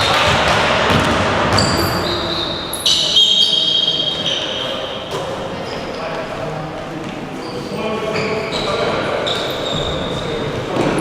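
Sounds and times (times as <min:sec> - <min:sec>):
basketball bouncing: 0:00.0 - 0:02.2
sneakers squeaking on court floor: 0:00.0 - 0:06.2, 0:07.4 - 0:11.0.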